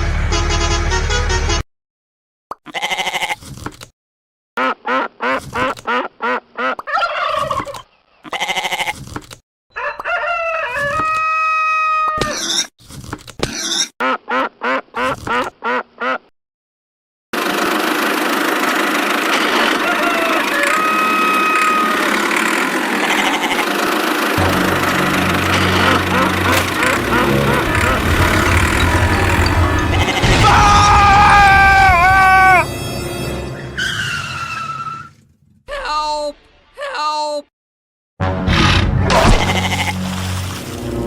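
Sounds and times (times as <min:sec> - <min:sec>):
fowl clucking: 0:04.6 - 0:07.9, 0:19.6 - 0:22.0
long held fowl call: 0:19.6 - 0:22.2
steady noisy din: 0:21.5 - 0:32.6.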